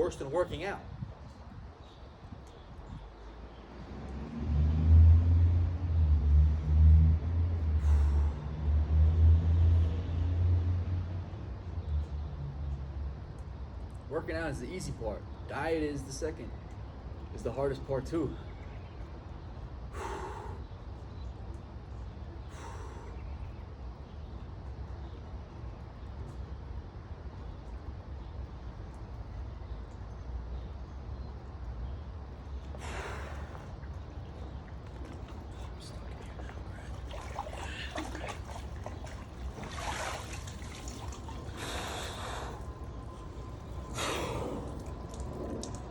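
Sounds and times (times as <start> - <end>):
faint water trickle: 0.0 - 19.9, 20.5 - 45.9
man breathing hard: 19.9 - 20.7, 22.5 - 23.3, 41.5 - 43.1, 43.8 - 45.0
low rumble: 33.3 - 45.9
forceful hissing exhales: 41.5 - 42.7, 43.9 - 44.9.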